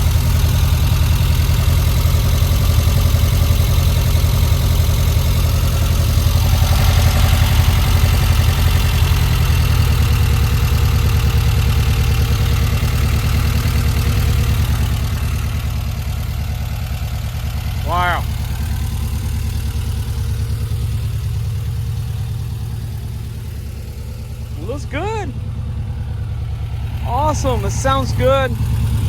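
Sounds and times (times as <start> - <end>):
air-cooled engine idling: 0.0 - 29.0.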